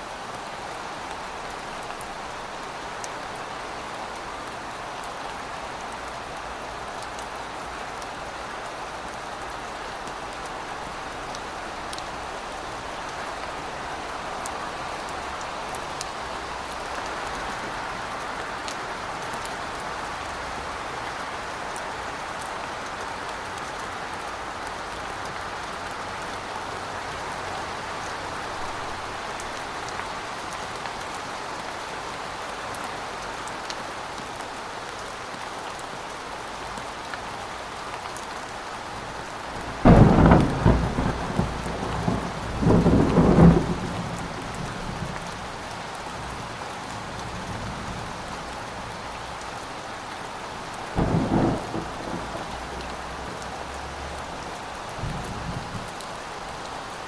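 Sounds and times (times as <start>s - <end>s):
rain hissing: 38.8s - 56.9s
thunder clap: 39.6s - 44.6s.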